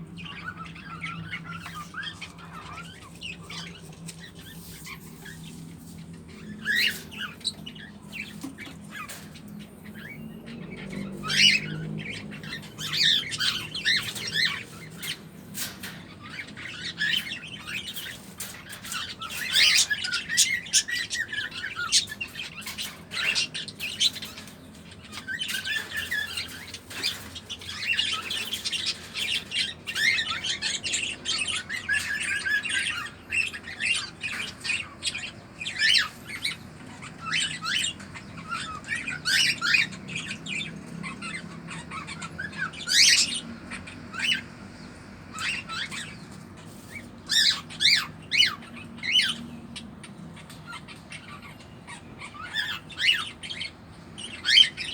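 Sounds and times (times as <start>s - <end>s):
cockatiel chirps and squawks: 46.8s - 49.4s.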